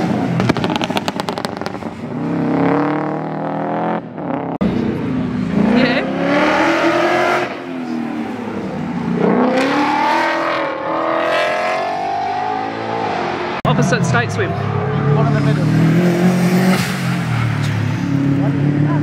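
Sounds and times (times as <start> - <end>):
car engine revving hard: 5.4 - 8.0, 9.1 - 13.6, 14.8 - 19.0.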